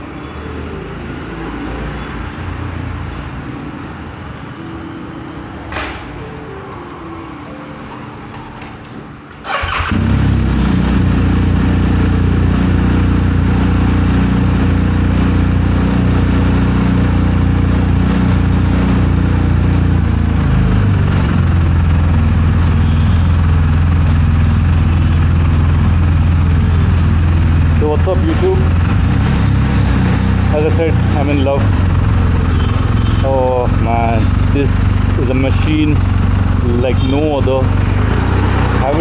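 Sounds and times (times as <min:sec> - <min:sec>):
motorcycle starter cranking: 0:09.4 - 0:10.5
motorcycle engine idling: 0:09.5 - 0:39.0.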